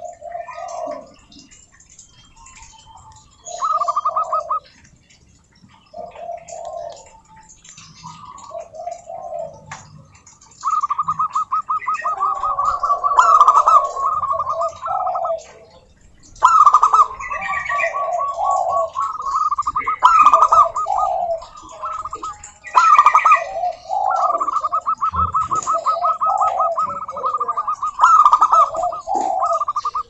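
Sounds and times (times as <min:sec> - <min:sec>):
doves cooing: 0:00.0 - 0:30.0
fast staccato bird notes: 0:24.0 - 0:30.0.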